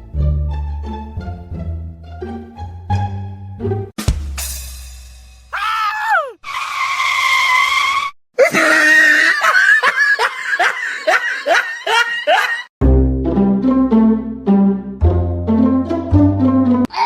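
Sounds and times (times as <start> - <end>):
high-pitched cries: 5.6 - 6.4.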